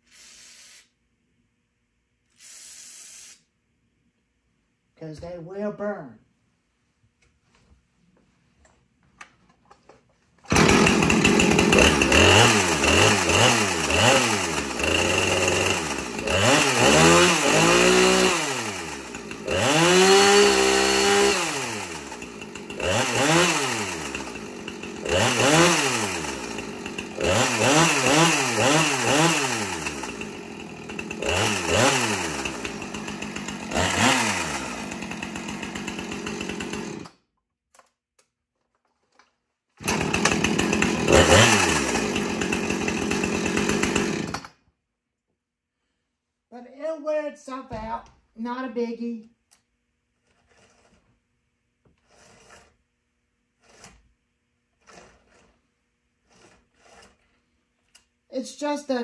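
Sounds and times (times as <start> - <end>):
chainsaw engine idling and revving: 10.5 - 37.2, 39.8 - 44.6, 54.8 - 55.5.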